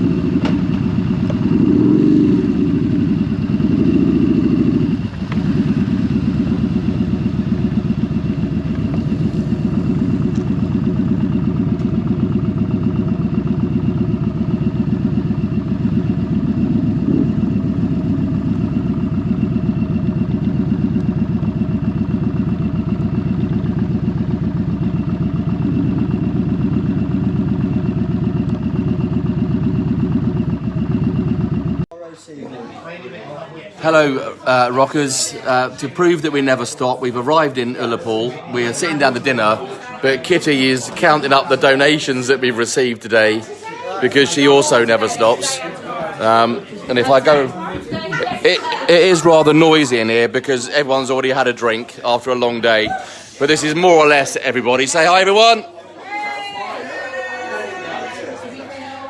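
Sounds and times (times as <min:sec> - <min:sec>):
motorcycle engine running: 0:00.0 - 0:31.9, 0:44.0 - 0:55.4.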